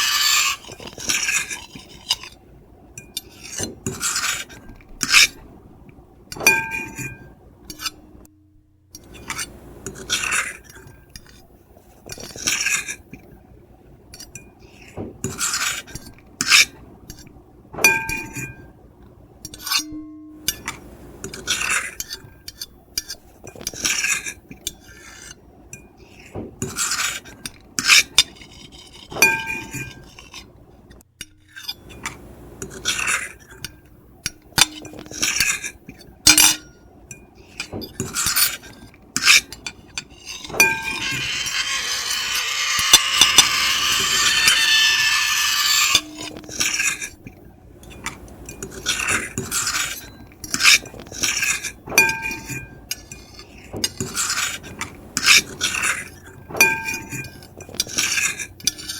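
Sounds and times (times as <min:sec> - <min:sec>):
fork and knife scraping plate: 0:00.0 - 0:02.4, 0:03.2 - 0:05.4, 0:26.1 - 0:30.5, 0:34.6 - 0:36.7, 0:37.5 - 0:47.3, 0:47.9 - 0:58.9.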